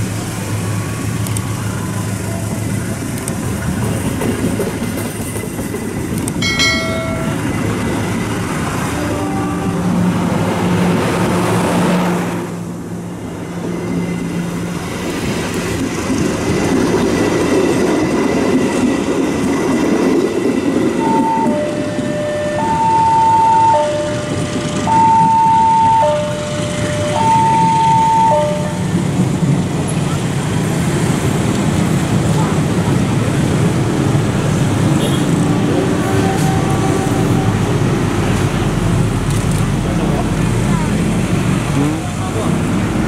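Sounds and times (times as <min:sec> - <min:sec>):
train wheels rumbling on rails: 0:00.0 - 0:43.0
level crossing two-tone alarm: 0:21.0 - 0:28.8.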